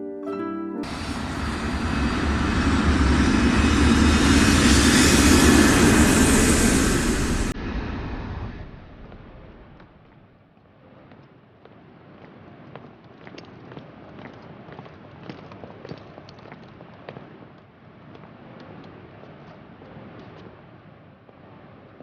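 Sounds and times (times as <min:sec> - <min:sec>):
plucked harp music: 0:00.0 - 0:00.8
jet airliner passing: 0:00.8 - 0:09.9.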